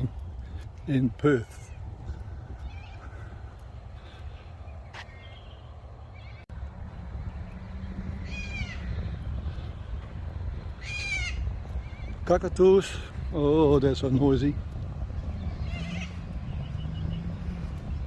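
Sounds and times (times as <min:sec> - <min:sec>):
cockatoos screeching: 0:10.8 - 0:12.2, 0:15.4 - 0:16.3.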